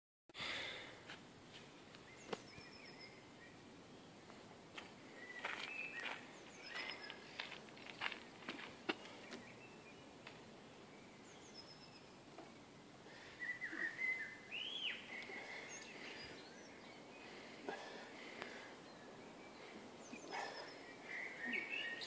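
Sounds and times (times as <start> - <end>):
low background hiss: 0.4 - 22.0
faint bird chirps and whistles: 2.0 - 3.6, 5.1 - 7.3, 10.9 - 12.7, 13.3 - 17.2, 18.8 - 22.0.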